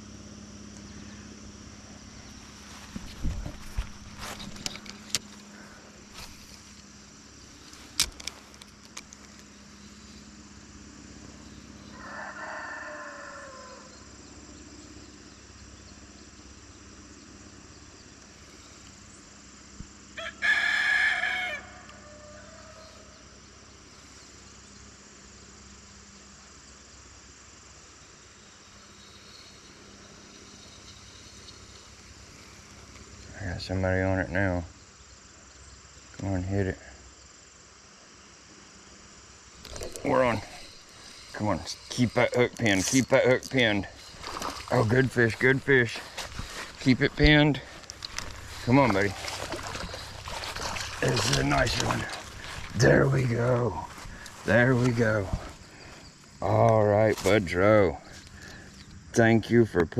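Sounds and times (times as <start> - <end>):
rooster crowing: 11.8 - 14.1, 20.1 - 23.2.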